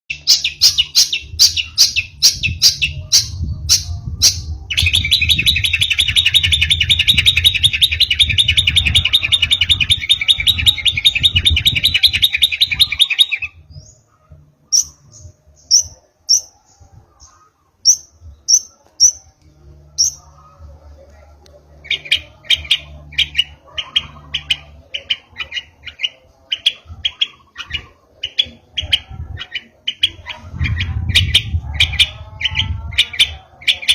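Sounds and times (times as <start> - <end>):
shrike singing: 0.1 - 33.9.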